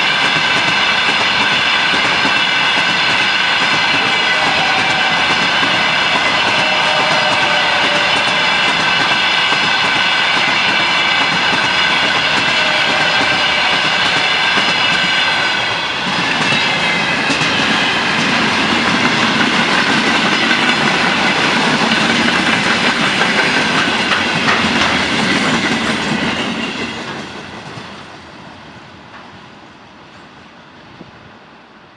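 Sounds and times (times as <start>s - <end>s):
train wheels clattering on rails: 0.0s - 30.4s.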